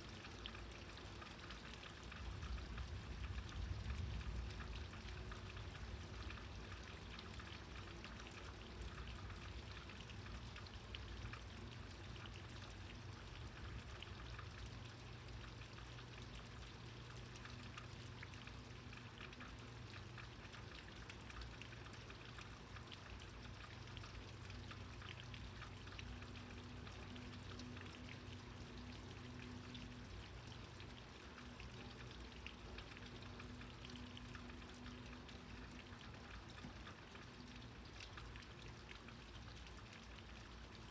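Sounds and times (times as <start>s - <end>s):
heavy rain pattering: 2.2s - 6.0s
steady low rumble: 2.2s - 6.8s.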